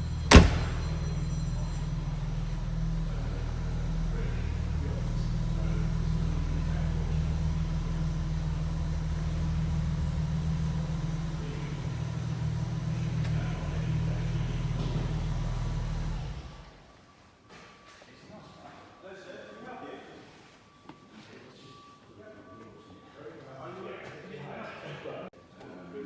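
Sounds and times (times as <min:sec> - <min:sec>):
engine idling: 0:00.0 - 0:16.9.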